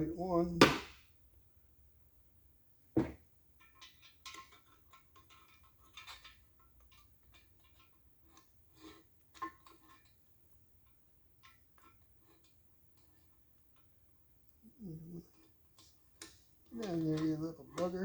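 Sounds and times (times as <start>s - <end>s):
sharp knock: 0.6s - 1.0s, 3.0s - 3.2s
metal parts clicking and clinking: 3.6s - 7.9s.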